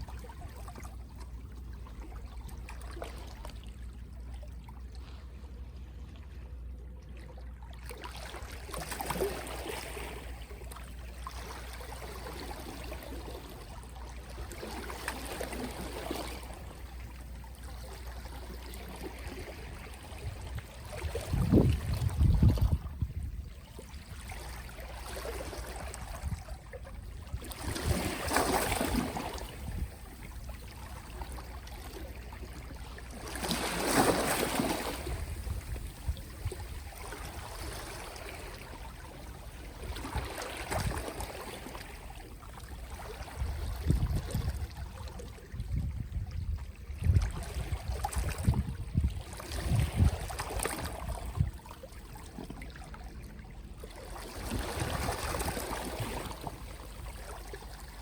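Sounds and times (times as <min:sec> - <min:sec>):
gentle sea waves on shore: 0:00.0 - 0:58.0.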